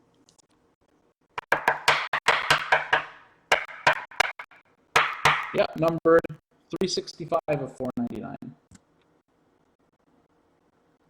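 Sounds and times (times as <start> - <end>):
cards and card holders clicking: 1.4 - 5.6.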